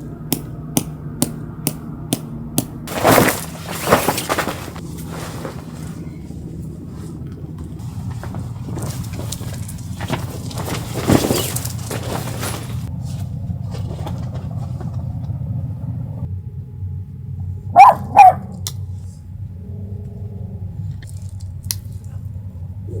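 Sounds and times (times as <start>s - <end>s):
steady low hum: 0.0s - 23.0s
dog barking: 17.7s - 18.7s.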